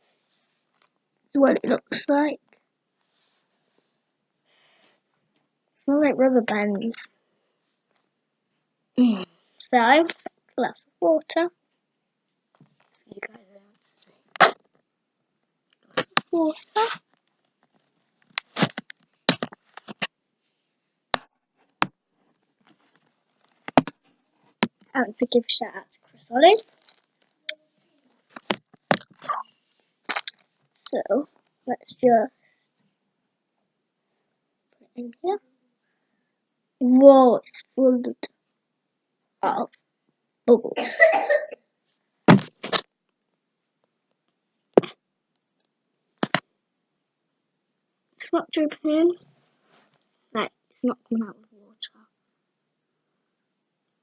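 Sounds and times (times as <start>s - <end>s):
objects knocking and clicking: 23.6s - 24.0s.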